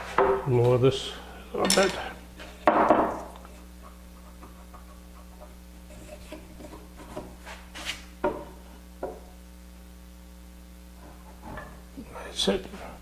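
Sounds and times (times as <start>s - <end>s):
steady low hum: 0.0s - 13.0s
wood tapping and rubbing: 3.8s - 9.2s.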